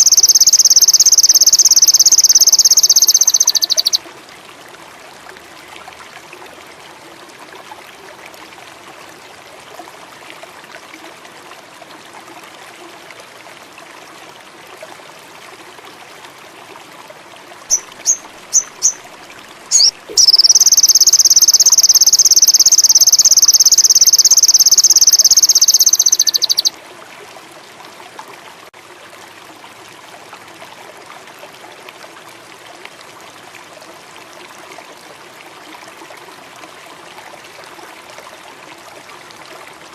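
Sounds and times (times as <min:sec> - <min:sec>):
bird buzzing trill: 0:00.0 - 0:04.0, 0:17.7 - 0:19.0, 0:19.7 - 0:26.7
songbird chirping: 0:00.0 - 0:04.0, 0:17.7 - 0:19.0, 0:19.7 - 0:26.7.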